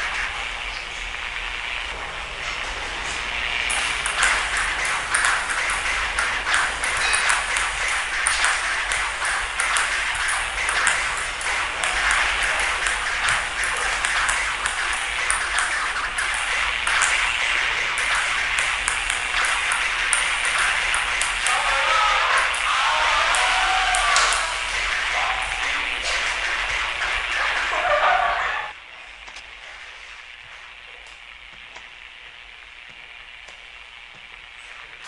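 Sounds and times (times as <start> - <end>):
steady hiss: 0.0 - 35.0
table tennis ball clicks: 3.7 - 21.7.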